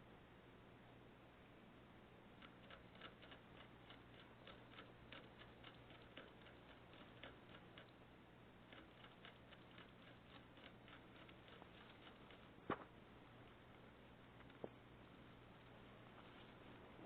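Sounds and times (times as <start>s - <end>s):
pet clicking in cage: 2.4s - 8.0s, 8.7s - 12.6s.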